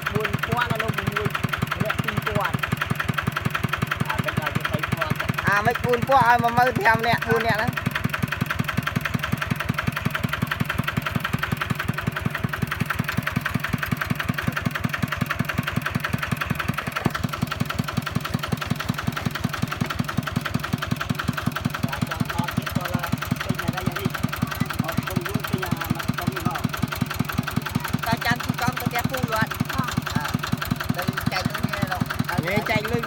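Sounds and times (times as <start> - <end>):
diesel tractor engine running: 0.0 - 33.0.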